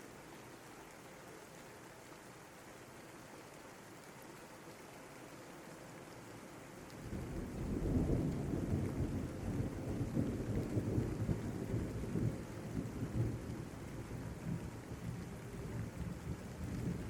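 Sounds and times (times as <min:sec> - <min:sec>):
steady rain: 0:00.0 - 0:17.0
rolling thunder: 0:07.1 - 0:14.8.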